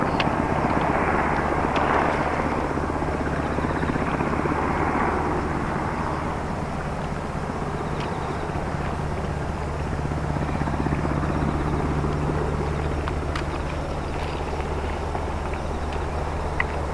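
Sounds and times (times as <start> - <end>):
boat diesel engine drone: 0.0 - 16.9.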